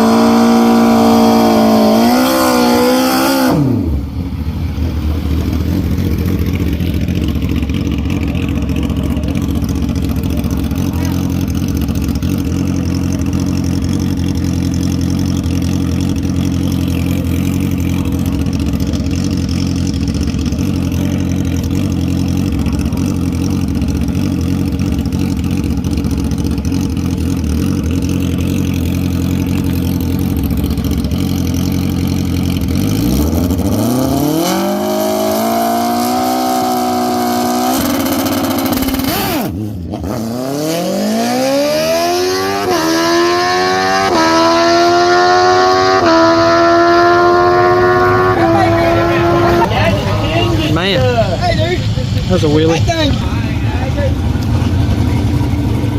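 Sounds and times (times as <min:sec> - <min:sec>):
drag racing engines: 0:00.0 - 0:55.9.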